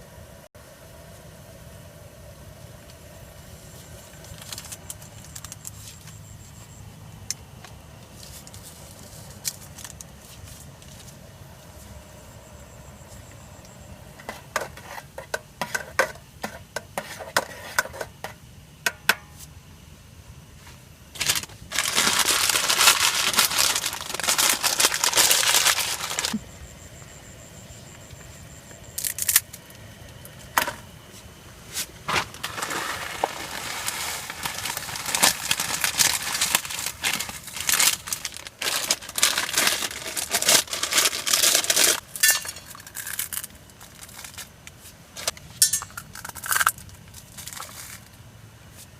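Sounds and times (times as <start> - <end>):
crinkling and crumpling: 3.7 - 6.3, 7.6 - 11.9, 21.1 - 26.4, 31.8 - 48.9.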